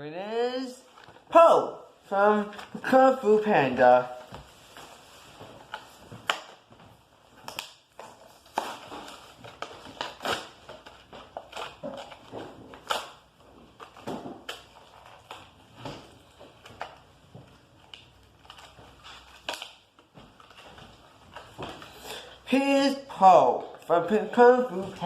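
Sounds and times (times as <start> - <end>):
plastic packaging crackling: 7.3 - 22.3.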